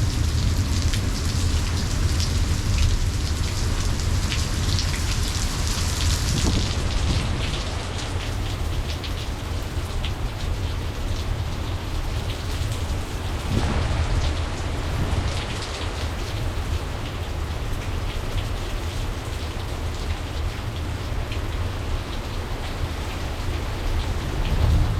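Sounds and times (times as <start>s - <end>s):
heavy rain drops hitting surfaces: 0.0s - 24.9s
low thunder rumble: 12.9s - 16.7s, 24.0s - 24.9s.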